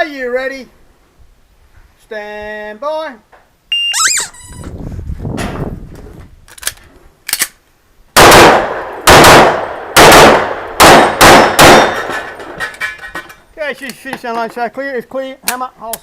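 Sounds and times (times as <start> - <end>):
pistol shots echoing: 8.2 - 12.3.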